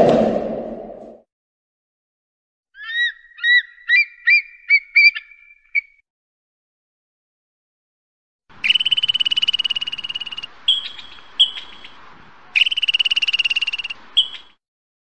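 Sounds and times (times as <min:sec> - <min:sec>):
squirrel chattering: 0:02.8 - 0:05.9, 0:08.6 - 0:12.0, 0:12.6 - 0:14.5.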